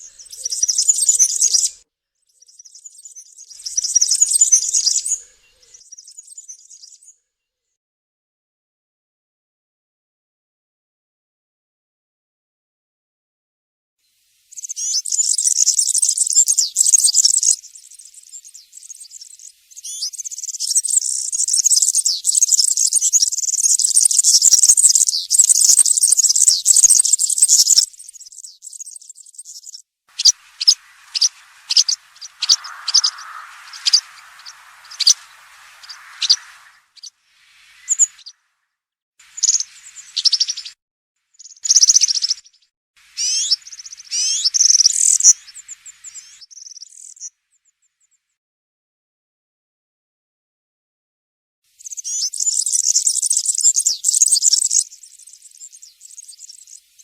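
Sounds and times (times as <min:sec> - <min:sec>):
bird singing jingling song: 0:00.0 - 0:07.2, 0:14.5 - 0:38.3, 0:39.3 - 0:40.8, 0:41.4 - 0:42.6, 0:51.8 - 0:57.0
short high bird notes: 0:30.2 - 0:38.3.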